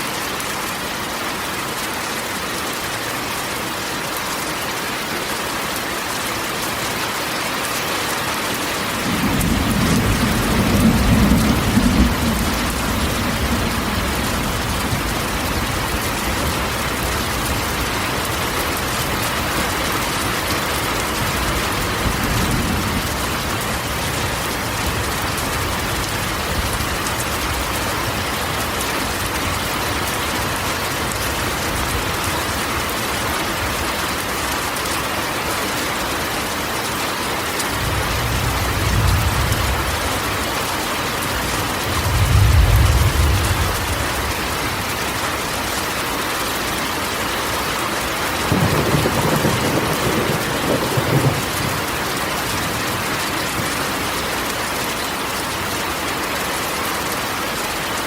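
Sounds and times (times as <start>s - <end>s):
rain drumming on metal roof: 0.0s - 58.0s
low roll of thunder: 9.0s - 16.8s, 37.7s - 40.5s, 41.7s - 44.5s, 48.5s - 52.8s.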